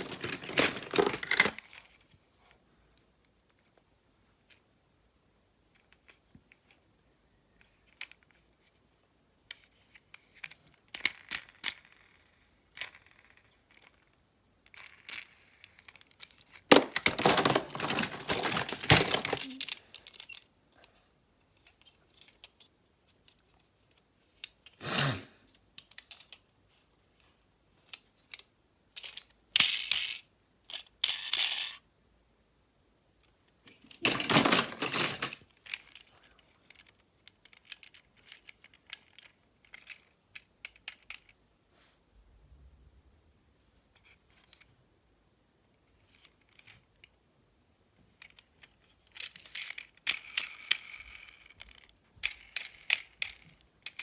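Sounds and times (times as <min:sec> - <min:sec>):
small hard objects clattering: 0:00.0 - 0:01.7, 0:16.6 - 0:20.4, 0:33.9 - 0:36.0.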